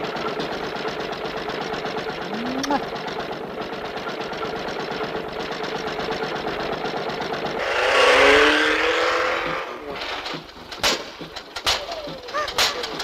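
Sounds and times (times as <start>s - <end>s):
cartoon car engine revving: 7.6s - 11.0s, 11.6s - 13.0s.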